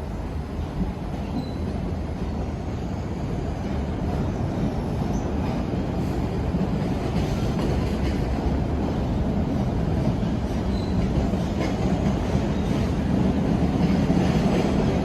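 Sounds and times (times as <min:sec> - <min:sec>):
subway train rumbling on rails: 0:00.0 - 0:15.0.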